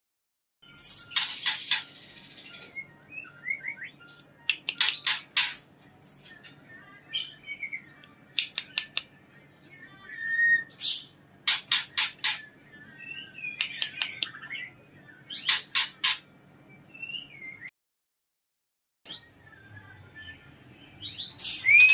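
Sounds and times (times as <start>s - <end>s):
bird harsh calls: 0.8s - 2.7s, 15.3s - 16.3s.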